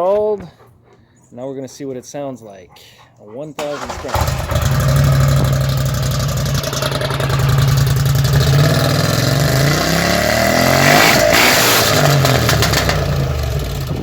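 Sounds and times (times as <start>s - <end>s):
atv engine idling and revving: 3.6s - 14.0s.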